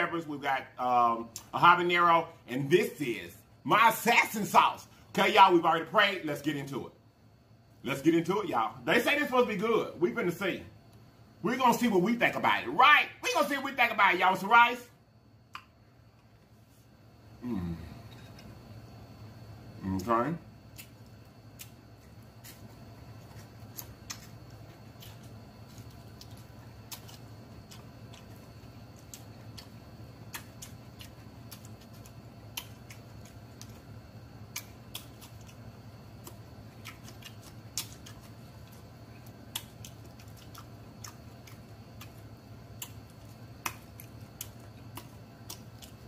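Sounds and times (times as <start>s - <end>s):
man chewing and mouth smacking: 20.7s - 46.0s.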